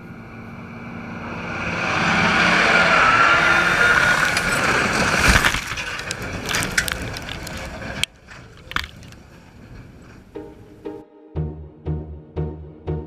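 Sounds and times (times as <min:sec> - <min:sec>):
loud mechanical noise: 0:00.0 - 0:10.4.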